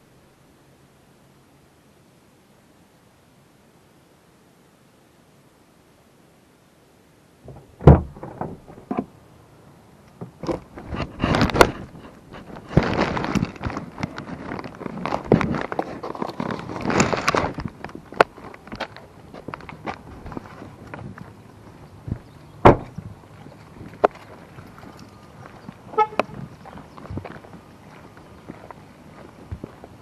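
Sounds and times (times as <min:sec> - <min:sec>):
faint hiss: 0:00.0 - 0:12.6
sharp thump: 0:07.4 - 0:09.0, 0:22.6 - 0:23.0
bag rustling and knocking: 0:10.5 - 0:19.0.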